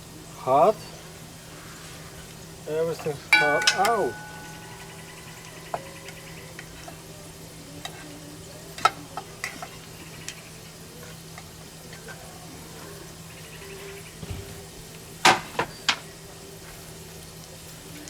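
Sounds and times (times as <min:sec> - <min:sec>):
steady low hum: 0:00.0 - 0:08.7
meat sizzling while frying: 0:00.0 - 0:18.0
utensil clicking and scraping cookware: 0:03.0 - 0:07.0.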